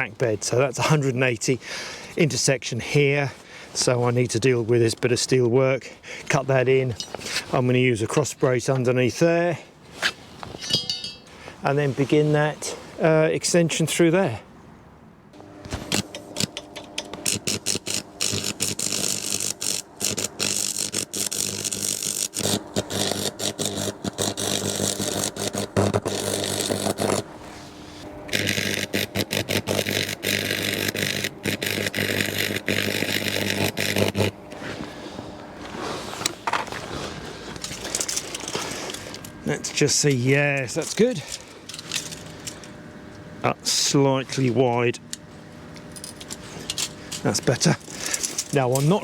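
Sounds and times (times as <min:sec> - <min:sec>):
arc welder crackling hiss: 0:17.2 - 0:27.3, 0:28.2 - 0:34.7.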